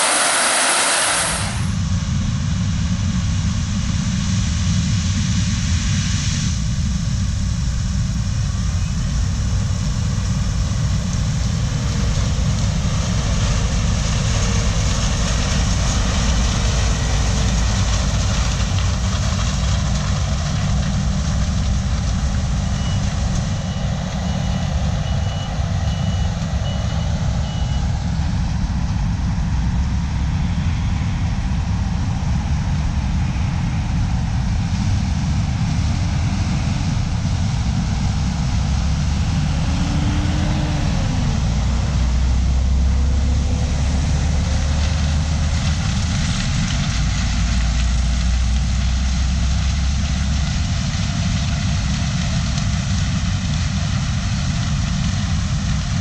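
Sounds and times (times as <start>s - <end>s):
diesel machinery running: 0.0s - 56.0s
backup alarm beeping: 22.8s - 27.9s.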